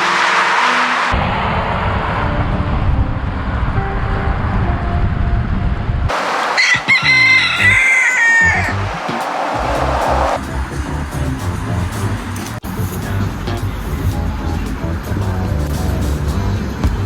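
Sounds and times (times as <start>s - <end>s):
wind rumbling on microphone: 1.1s - 16.8s
rooster crowing: 6.2s - 10.4s.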